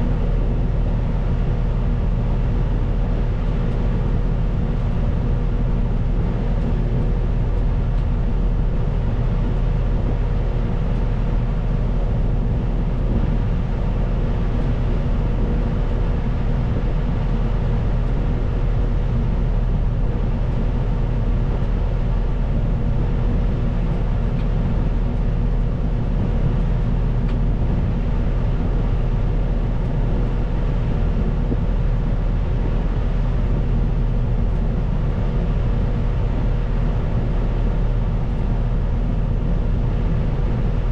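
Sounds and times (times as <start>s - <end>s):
constant whine: 0.0s - 40.9s
diesel engine running: 0.0s - 40.9s.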